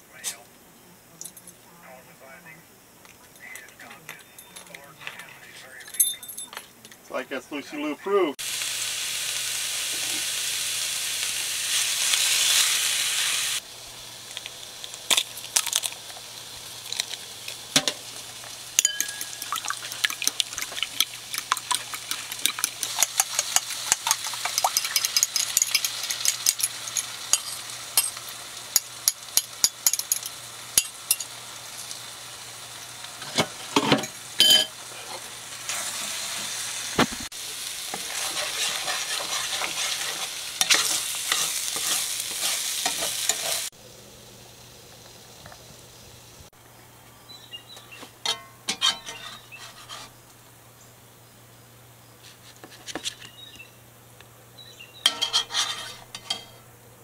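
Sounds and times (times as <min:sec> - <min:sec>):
food sizzling in a pan: 0:07.6 - 0:46.6, 0:55.0 - 0:56.7
pops and crackles: 0:14.3 - 0:17.6, 0:19.2 - 0:25.2.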